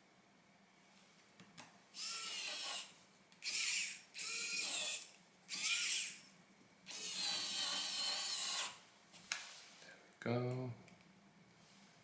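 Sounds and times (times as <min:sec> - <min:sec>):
electric screwdriver whining: 0:02.0 - 0:06.3, 0:06.9 - 0:08.8.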